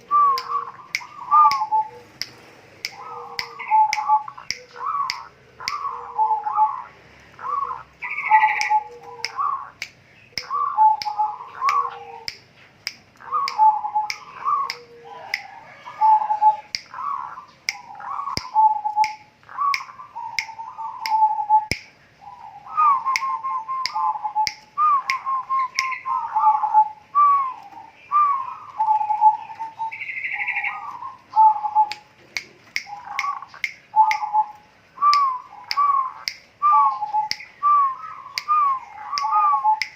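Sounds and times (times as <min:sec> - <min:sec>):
bird calling: 0:00.0 - 0:39.9
sharp ticking: 0:00.2 - 0:05.9, 0:07.4 - 0:15.4, 0:23.0 - 0:26.1, 0:31.8 - 0:39.9.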